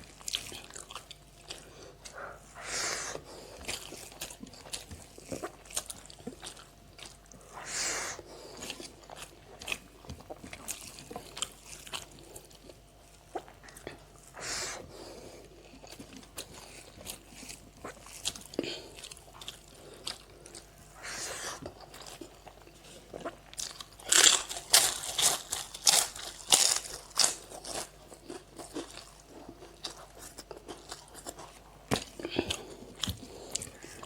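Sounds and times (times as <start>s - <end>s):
person chewing food: 0.0s - 34.0s.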